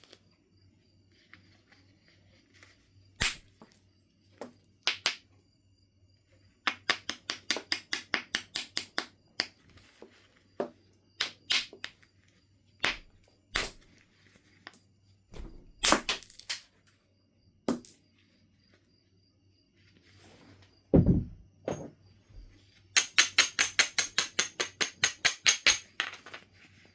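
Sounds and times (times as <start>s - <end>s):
stone being knapped: 12.8s - 13.9s.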